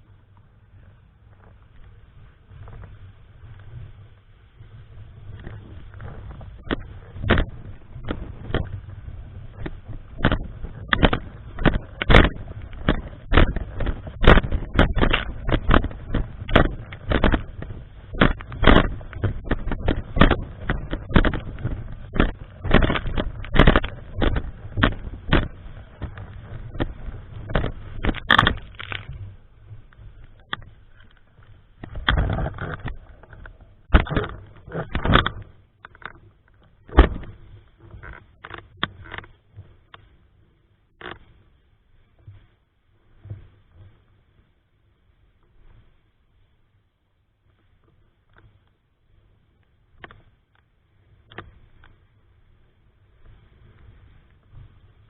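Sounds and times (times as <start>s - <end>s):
strong wind buffeting microphone: 2.5s - 30.7s
sharp irregular thumps: 5.4s - 39.7s.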